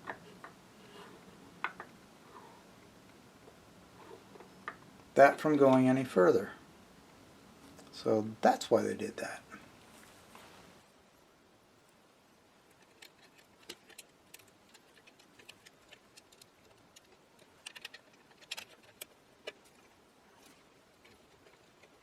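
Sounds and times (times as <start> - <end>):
small metal parts clicking: 12.7 - 22.0.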